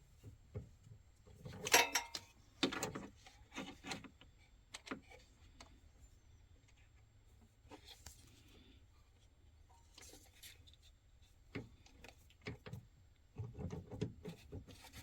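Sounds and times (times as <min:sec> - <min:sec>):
metallic clanks of hand tools: 0:01.6 - 0:02.3.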